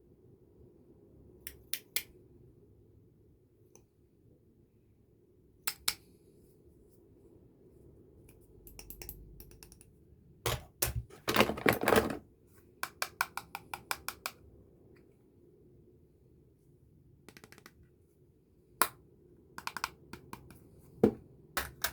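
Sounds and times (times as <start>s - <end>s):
plastic cases clicking and clattering: 10.5s - 12.2s.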